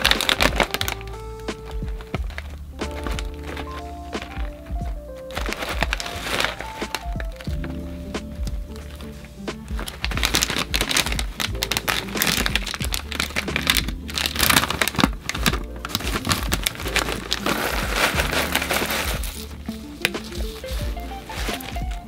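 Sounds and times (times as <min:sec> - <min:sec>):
background music: 0:00.0 - 0:22.0
plastic packaging crinkling: 0:00.0 - 0:22.0.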